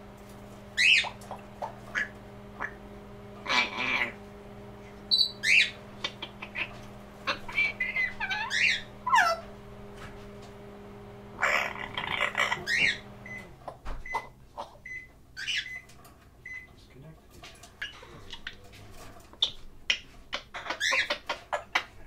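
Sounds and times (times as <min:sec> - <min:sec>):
steady low hum: 0:00.0 - 0:22.0
parrot whistled calls: 0:00.8 - 0:01.2, 0:05.1 - 0:09.5, 0:11.4 - 0:13.4, 0:14.8 - 0:15.9
harsh parrot call: 0:00.8 - 0:02.8, 0:03.4 - 0:04.2, 0:05.1 - 0:09.5, 0:11.4 - 0:13.1.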